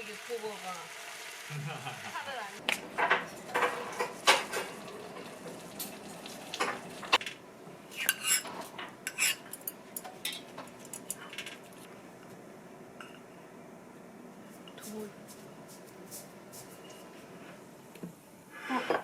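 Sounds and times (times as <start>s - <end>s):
cutlery clinking against dishes: 9.1s - 11.6s.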